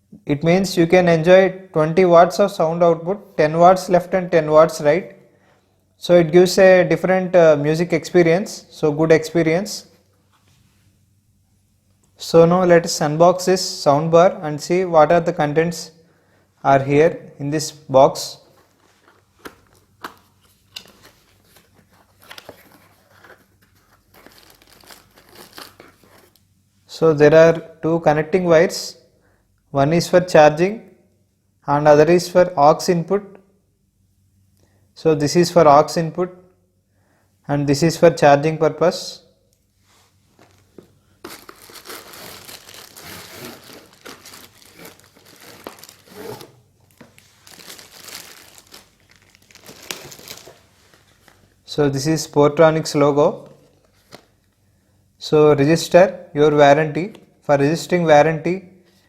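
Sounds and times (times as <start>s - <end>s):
packaging crinkling and rustling: 18.4s - 26.4s, 40.3s - 51.6s.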